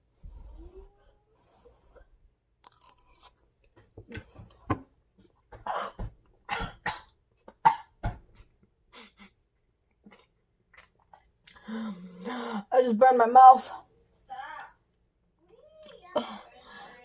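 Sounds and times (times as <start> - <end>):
person chewing food: 2.6 - 4.7, 9.8 - 12.3
person coughing: 5.6 - 8.0.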